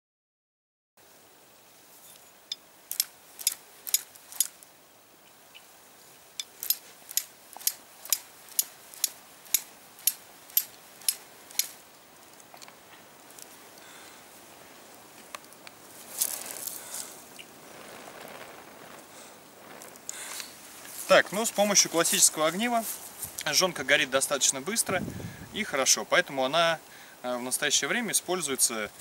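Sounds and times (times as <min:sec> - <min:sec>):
steel striker scraping flint: 0:02.0 - 0:04.7, 0:06.4 - 0:13.9.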